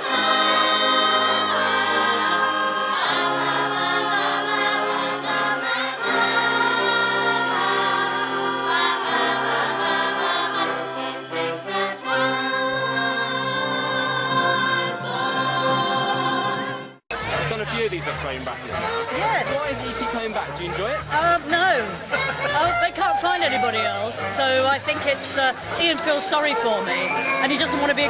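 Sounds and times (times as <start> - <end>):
brass band playing chords: 0.0 - 28.0.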